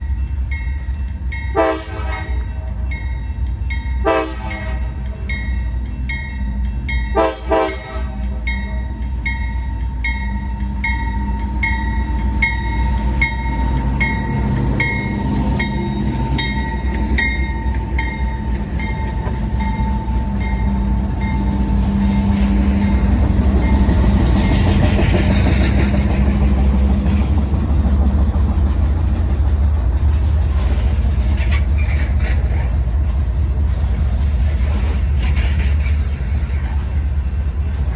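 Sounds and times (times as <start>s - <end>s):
crossing bell dinging: 0.0s - 24.7s
passing train rumble: 0.0s - 37.9s
train horn blasts: 1.5s - 2.7s, 4.0s - 5.1s, 7.1s - 8.5s.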